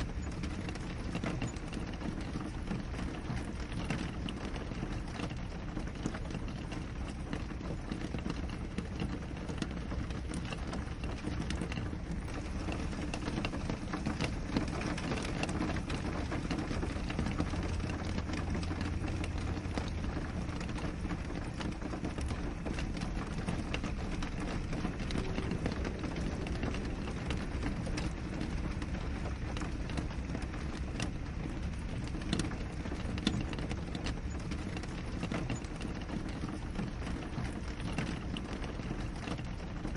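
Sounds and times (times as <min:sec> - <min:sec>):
rain against a window: 0:00.0 - 0:39.9
deep low rumble: 0:10.7 - 0:35.2.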